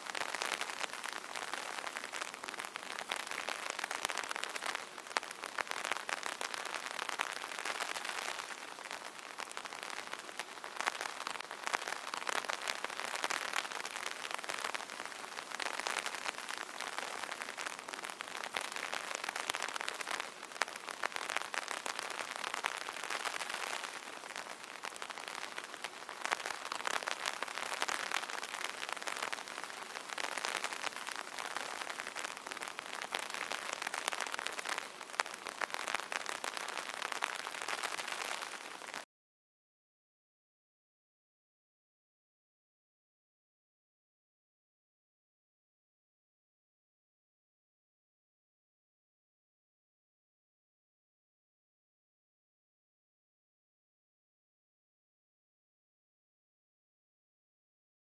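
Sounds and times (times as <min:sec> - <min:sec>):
rain pattering on umbrella: 0:00.0 - 0:39.1.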